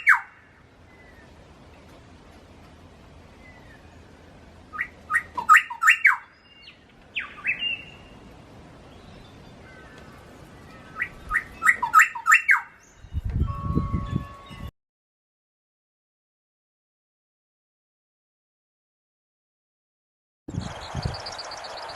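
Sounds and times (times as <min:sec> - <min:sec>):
songbird singing: 0:00.0 - 0:14.7, 0:20.5 - 0:21.9.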